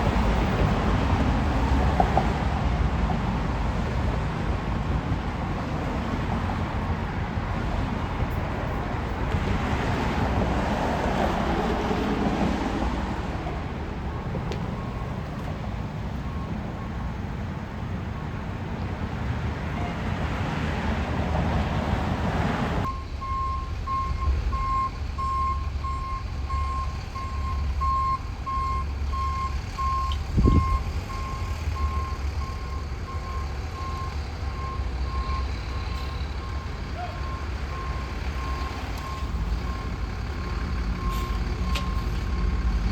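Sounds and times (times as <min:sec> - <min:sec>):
fire truck engine running: 0:00.0 - 0:42.9
reverse alarm beeping: 0:22.8 - 0:39.9.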